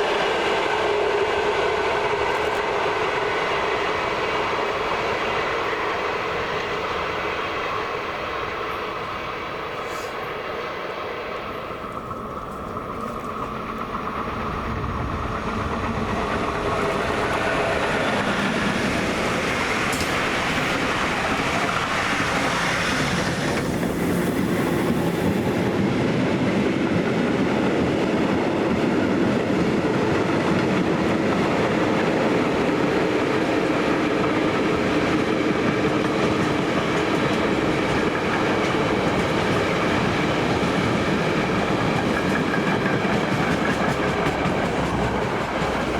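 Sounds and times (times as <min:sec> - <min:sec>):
train wheels clattering over rails: 0:11.7 - 0:45.9.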